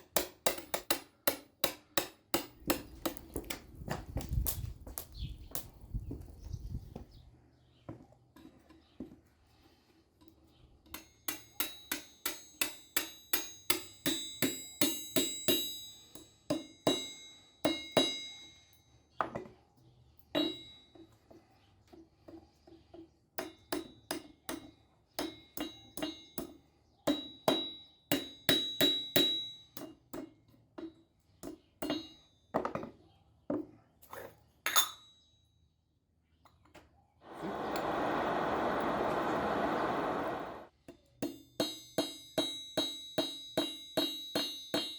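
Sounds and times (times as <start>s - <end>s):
hammer ringing on anvil: 10.9s - 19.0s, 20.4s - 21.0s, 27.1s - 30.0s, 41.2s - 44.9s.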